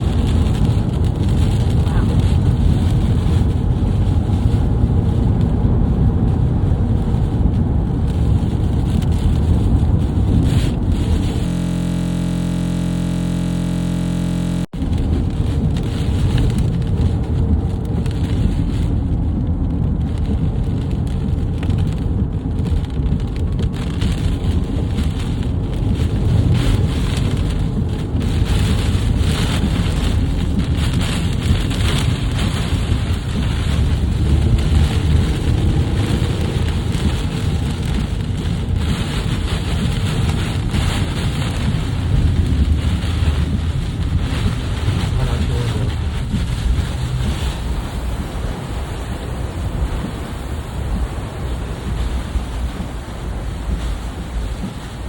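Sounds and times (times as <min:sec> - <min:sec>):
wind buffeting microphone: 0:00.0 - 0:11.5, 0:14.7 - 0:55.0
rain: 0:00.0 - 0:55.0
steady held tone: 0:11.4 - 0:14.7.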